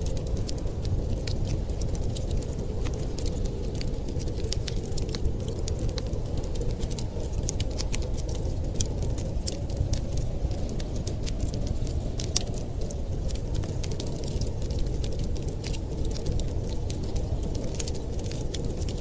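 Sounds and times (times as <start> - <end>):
low blizzard wind rumble: 0.0 - 19.0
wood fire crackling and popping: 0.0 - 19.0.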